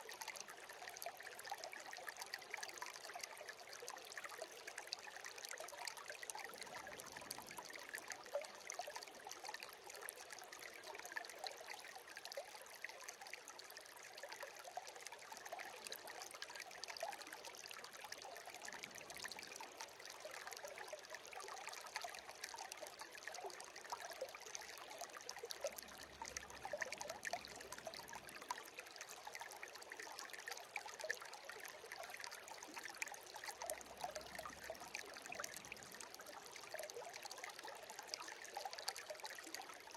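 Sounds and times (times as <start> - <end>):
stream babbling and trickling: 0.0 - 39.9.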